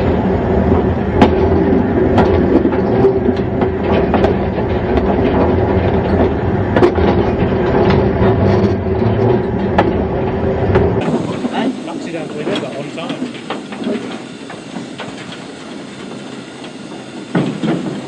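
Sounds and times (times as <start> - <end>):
train rumbling on track: 0.0 - 18.0
wheels clicking on rails: 0.0 - 18.0.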